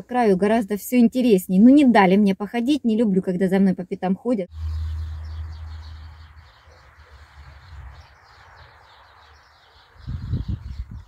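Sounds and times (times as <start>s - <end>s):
small birds chirping: 4.5s - 11.0s.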